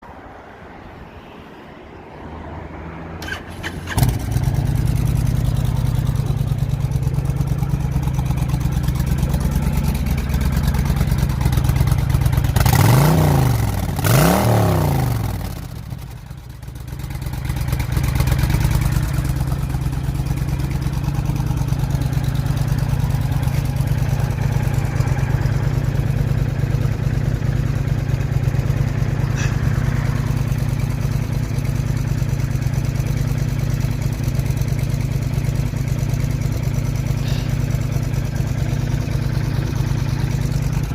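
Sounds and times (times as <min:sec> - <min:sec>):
vehicle engine idling and revving: 0:02.4 - 0:40.9
engine cranking: 0:03.2 - 0:05.6.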